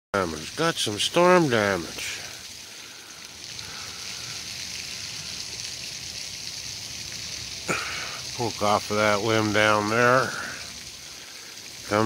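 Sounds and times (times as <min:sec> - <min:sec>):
steady rushing hiss: 0:00.2 - 0:12.0.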